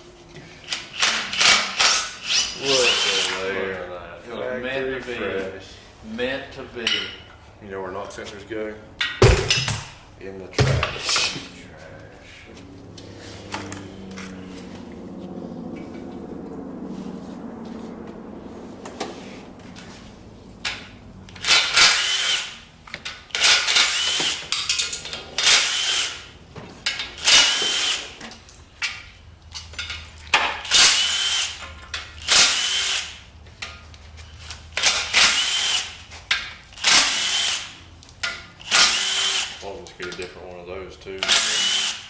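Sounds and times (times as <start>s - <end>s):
power tool whining bursts: 20.6s - 22.7s, 23.4s - 24.8s.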